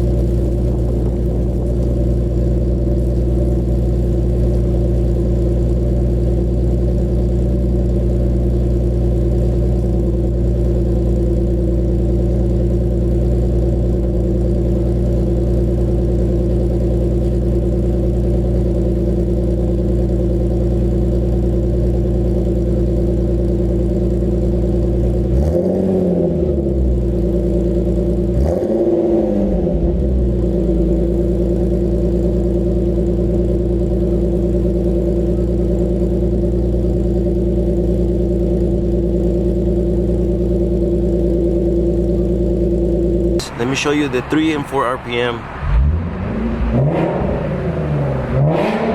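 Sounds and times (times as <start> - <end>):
car engine idling: 0.0 - 48.9
engine revving: 25.3 - 26.7, 28.3 - 30.0, 43.4 - 48.9.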